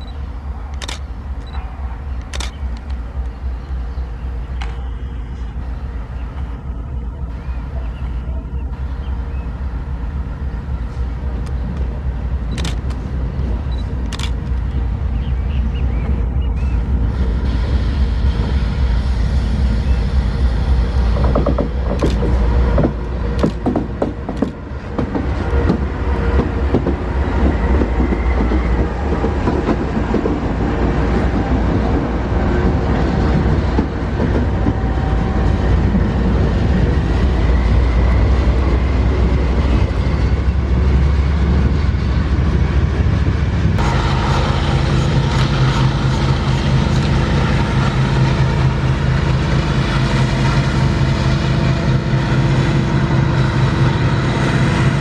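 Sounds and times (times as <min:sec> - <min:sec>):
diesel locomotive engine hum: 0:00.0 - 0:55.0
train wheels clattering on rails: 0:20.8 - 0:42.9.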